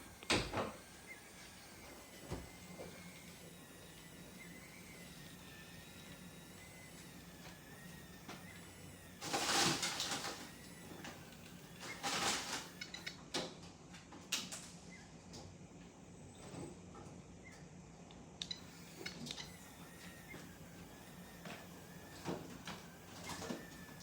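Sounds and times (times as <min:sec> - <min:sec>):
toy crawler winch rasping: 0:00.0 - 0:13.2, 0:18.4 - 0:24.0
sharp clicks: 0:18.1 - 0:23.9.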